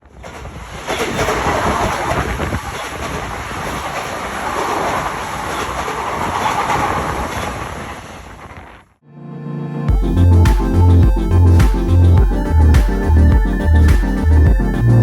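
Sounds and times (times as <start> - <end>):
train wheels on rails: 0.0 - 8.7.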